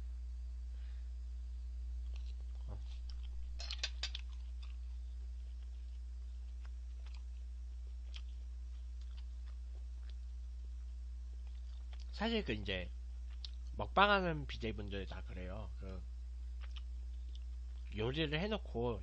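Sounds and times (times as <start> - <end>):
steady low hum: 0.0 - 19.0
person chewing steak: 2.0 - 12.1, 13.2 - 13.8, 16.5 - 18.0.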